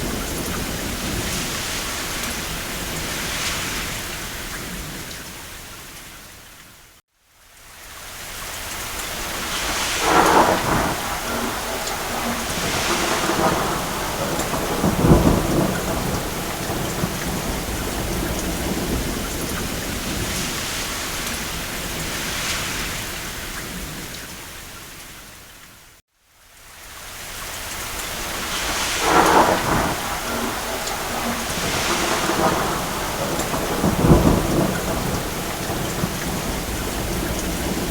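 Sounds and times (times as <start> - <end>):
rain on a roof: 0.0 - 37.9
distant thunder rolling: 9.3 - 22.8, 28.1 - 37.9.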